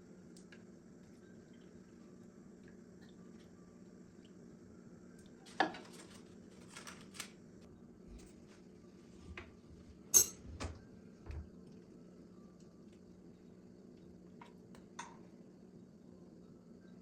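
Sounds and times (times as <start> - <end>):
steady low hum: 0.0 - 6.6, 7.2 - 17.0
kitchenware clacking: 10.2 - 10.5.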